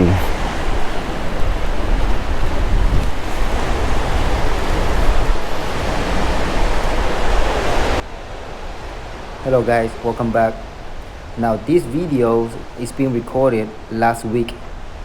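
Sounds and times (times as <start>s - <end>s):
wind on microphone: 0.0s - 8.0s
ocean surf: 0.0s - 15.0s.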